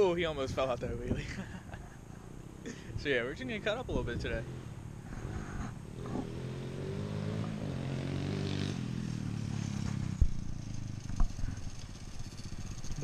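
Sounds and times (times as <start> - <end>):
small motorcycle engine revving: 4.4 - 13.0.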